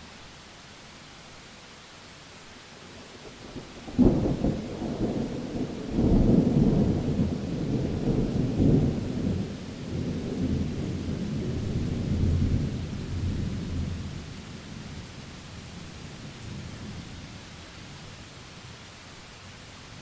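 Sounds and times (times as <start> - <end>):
steady rain: 0.0 - 20.0
thunder crack and rumble: 3.6 - 14.0.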